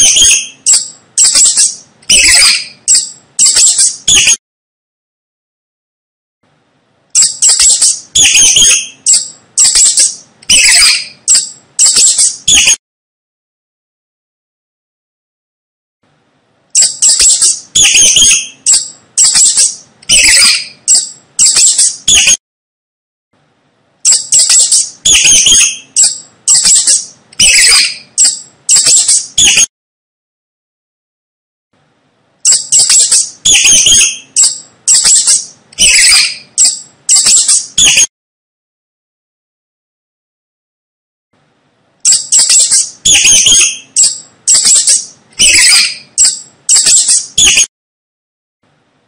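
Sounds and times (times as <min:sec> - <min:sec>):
mouse squeaking: 0:00.0 - 0:04.4, 0:07.1 - 0:12.8, 0:16.7 - 0:22.4, 0:24.0 - 0:29.7, 0:32.4 - 0:38.1, 0:42.0 - 0:47.7.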